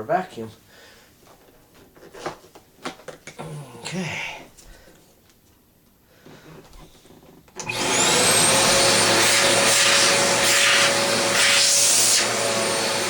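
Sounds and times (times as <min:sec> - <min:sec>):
vacuum cleaner motor whining: 0:07.6 - 0:13.0.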